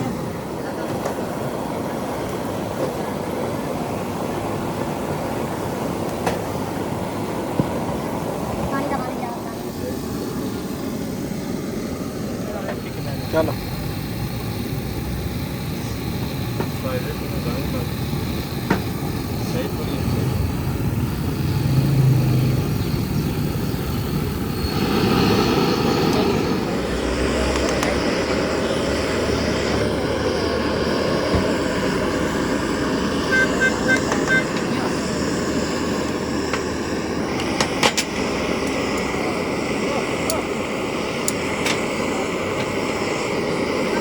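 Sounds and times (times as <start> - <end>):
traffic and street noise: 0.0 - 44.0
high beeps: 33.2 - 34.6.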